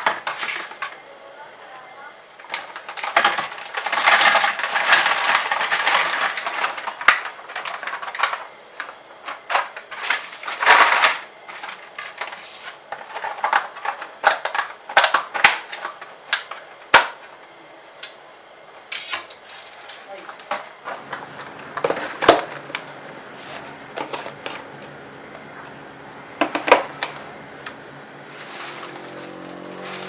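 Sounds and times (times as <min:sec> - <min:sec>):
handling rustling: 0:26.8 - 0:30.0.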